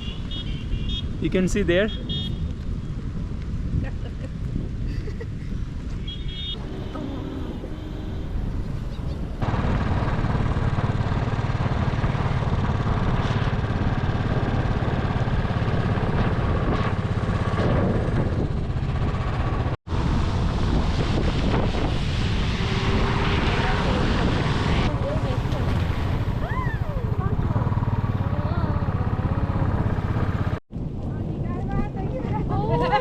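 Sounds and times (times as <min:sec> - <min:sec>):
wind buffeting microphone: 0:00.7 - 0:33.0
motorcycle engine running: 0:06.4 - 0:20.8, 0:22.7 - 0:30.6.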